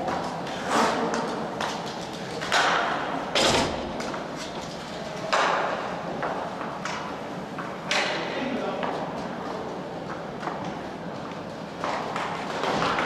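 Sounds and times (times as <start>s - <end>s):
hockey sticks and puck knocking: 5.3s - 8.2s.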